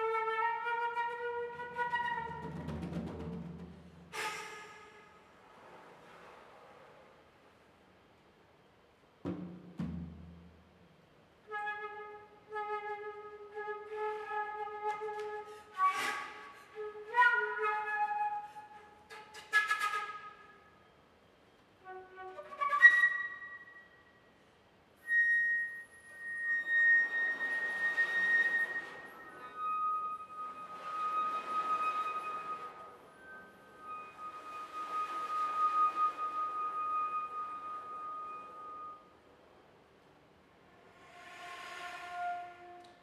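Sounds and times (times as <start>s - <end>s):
solo flute playing: 0.0s - 2.5s, 11.4s - 20.8s, 21.8s - 24.2s, 25.0s - 39.2s, 41.8s - 43.0s.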